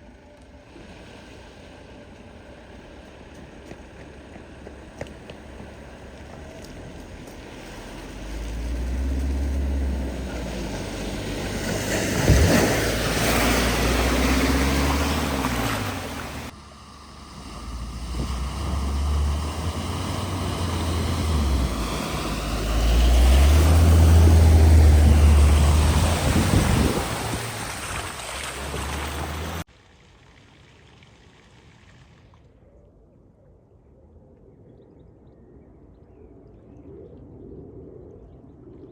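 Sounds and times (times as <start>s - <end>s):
vehicle engine: 0.0s - 32.4s
water splashing against vehicles: 0.0s - 32.4s
wind buffeting microphone: 9.8s - 16.5s, 17.8s - 29.6s.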